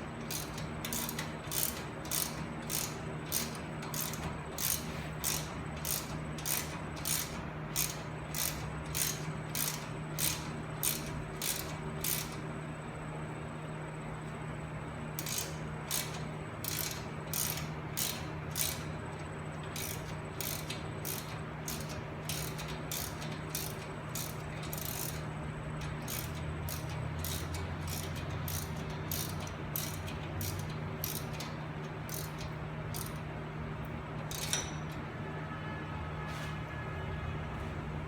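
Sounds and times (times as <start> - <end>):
ratchet wrench clicking: 0.2 - 12.4, 15.2 - 18.8, 19.7 - 33.2, 34.3 - 34.8.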